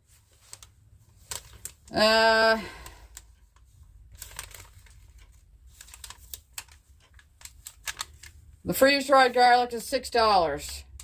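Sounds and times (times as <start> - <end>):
crinkling of packaging: 0.0 - 8.7.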